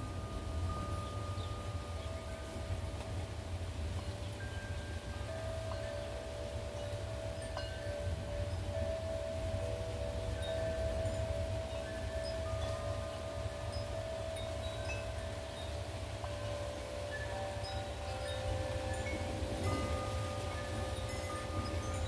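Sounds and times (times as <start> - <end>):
low wind rumble: 0.0 - 22.0
wind chimes ringing: 0.0 - 22.0.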